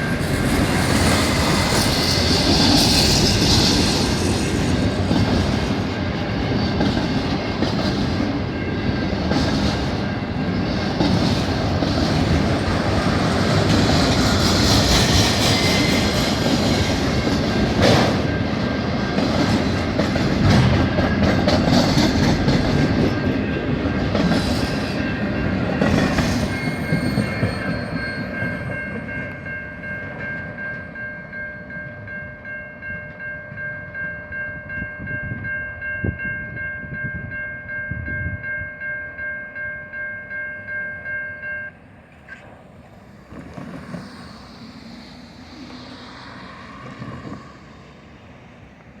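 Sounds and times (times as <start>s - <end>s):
high-pitched wheel squeal: 0.0s - 4.8s, 14.2s - 17.3s, 25.9s - 29.0s
wheels clickety-clack: 0.0s - 31.0s, 42.1s - 47.8s
freight train rumbling past: 0.0s - 49.0s.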